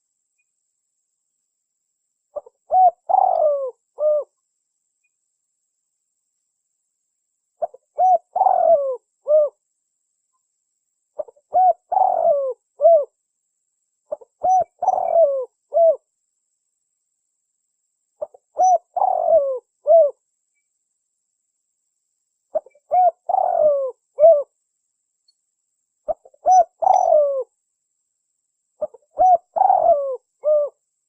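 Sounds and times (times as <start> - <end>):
dove cooing: 2.4 - 4.4, 7.6 - 9.6, 11.2 - 13.1, 14.1 - 16.0, 18.2 - 20.2, 22.5 - 24.5, 26.1 - 27.5, 28.8 - 30.8.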